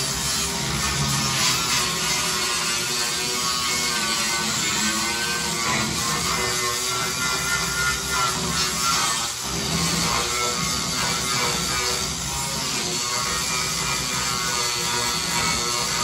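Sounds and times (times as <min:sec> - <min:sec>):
angle grinder grinding metal: 0:00.0 - 0:16.0.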